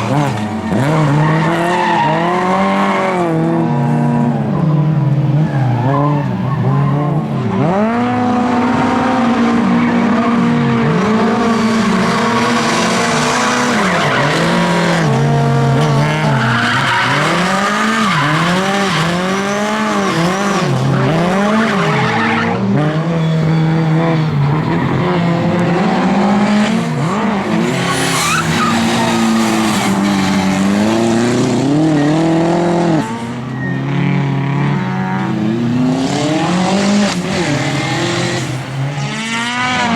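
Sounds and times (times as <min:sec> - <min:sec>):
race car engines revving: 0:00.0 - 0:39.9
tyres squealing: 0:12.1 - 0:20.0, 0:23.1 - 0:34.0.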